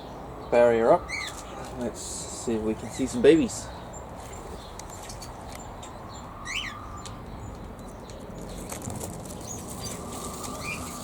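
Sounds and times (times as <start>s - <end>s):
bird chirping: 0.0s - 11.0s
faint high bird peeps: 0.8s - 1.6s, 6.2s - 7.2s, 9.4s - 11.0s.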